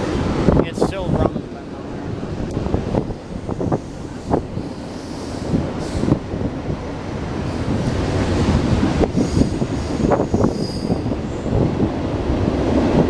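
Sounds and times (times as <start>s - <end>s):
train wheels rumbling on rail: 0.0s - 13.0s
high wheel squeal: 3.5s - 6.2s, 7.5s - 11.6s
rail clicks: 7.2s - 13.0s.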